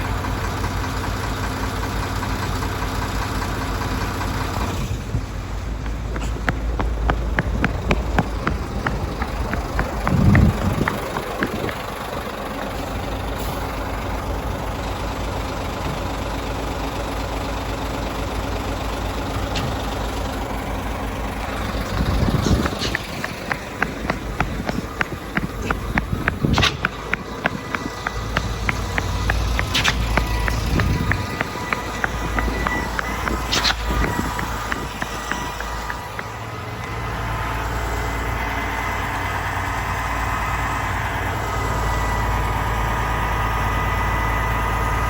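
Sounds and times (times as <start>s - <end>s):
diesel truck engine running: 0.0s - 45.0s
quick rhythmic clicking: 5.5s - 12.8s, 20.2s - 36.6s.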